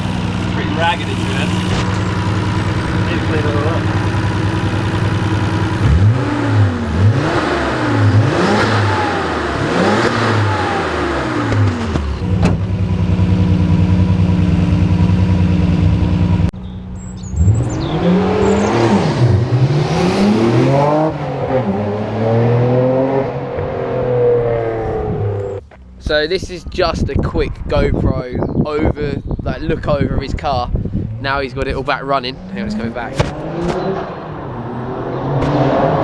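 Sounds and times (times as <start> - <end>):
car engine idling: 0.0 - 8.4, 10.4 - 17.4
car engine revving in throttle blips: 0.0 - 16.5, 17.2 - 25.6, 30.9 - 36.0.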